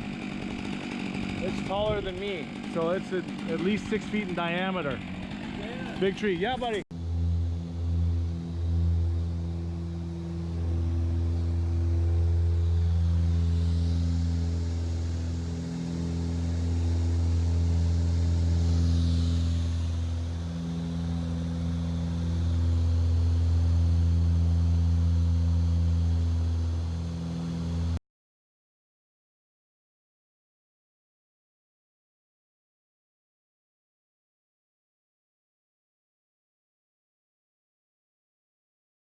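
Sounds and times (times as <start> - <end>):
engine running steadily: 0.0 - 28.0.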